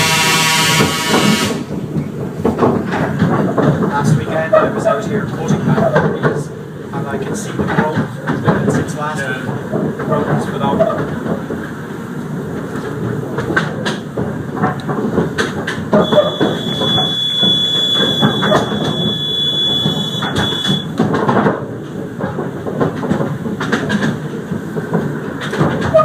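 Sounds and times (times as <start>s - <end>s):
high-pitched whine: 0.0s - 1.7s, 16.0s - 20.9s
train rumbling along track: 0.0s - 26.0s
wheels clicking over rails: 0.0s - 26.0s.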